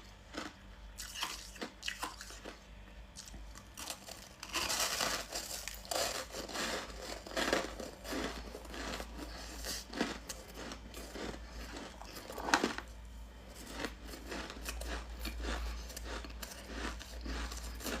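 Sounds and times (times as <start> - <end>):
low steady hum: 0.0 - 18.0
ice crunching: 3.8 - 12.8.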